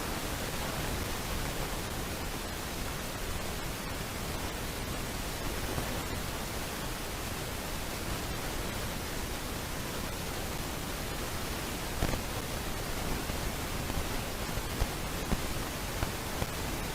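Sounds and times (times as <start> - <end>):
steady hiss: 0.0 - 16.9.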